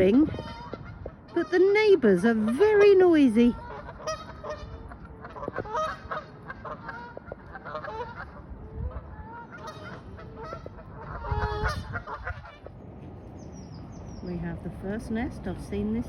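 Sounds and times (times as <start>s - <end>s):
geese honking: 0.0s - 12.8s.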